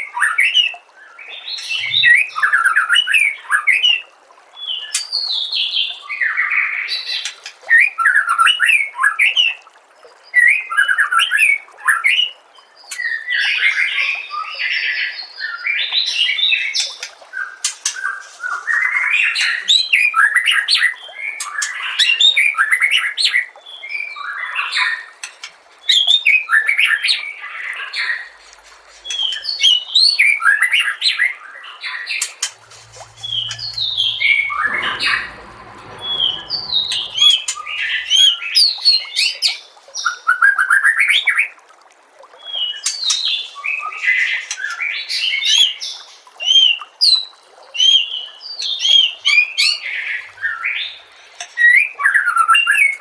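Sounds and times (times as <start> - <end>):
low rumbling hum: 32.4 - 39.0.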